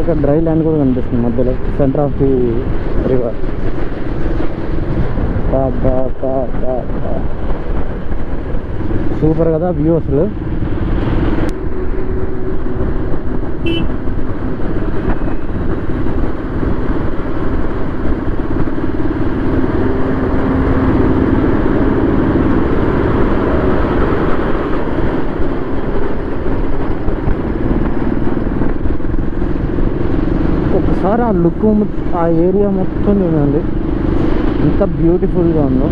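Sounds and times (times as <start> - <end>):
wind and road noise: 0.0 - 35.9
motorcycle engine running: 6.2 - 30.8.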